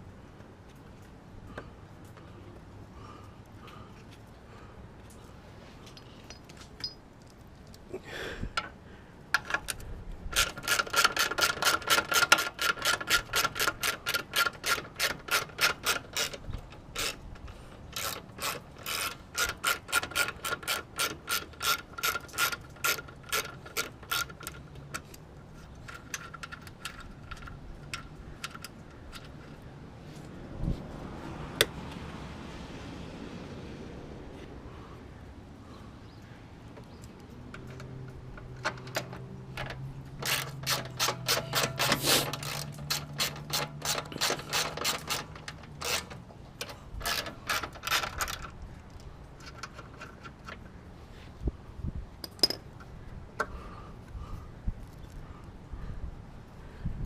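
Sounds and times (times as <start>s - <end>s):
rapid ringing metallic clicking: 40.2s - 46.3s.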